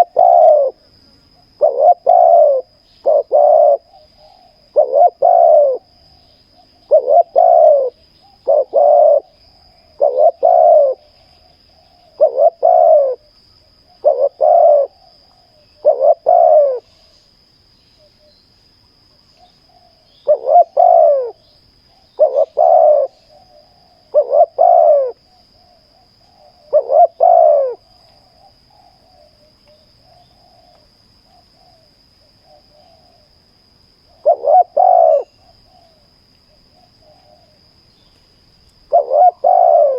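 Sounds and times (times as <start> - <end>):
doves cooing: 0.0 - 0.8, 1.5 - 13.3, 14.0 - 17.1, 19.7 - 21.4, 22.0 - 30.8, 34.1 - 36.0, 38.9 - 39.9.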